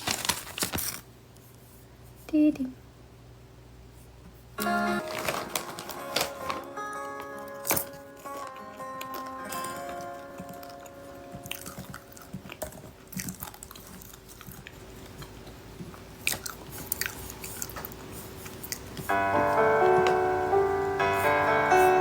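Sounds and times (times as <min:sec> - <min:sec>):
clicks and crunching: 0:00.0 - 0:01.1, 0:04.6 - 0:19.1
chiming melody: 0:19.1 - 0:22.0.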